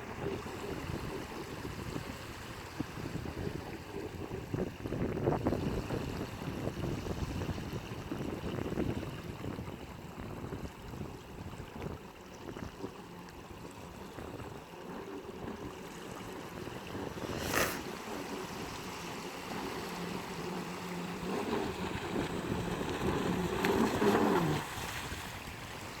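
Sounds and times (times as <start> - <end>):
faint motor hum: 0.0 - 26.0
wind on microphone: 0.0 - 26.0
water splashing: 11.6 - 26.0.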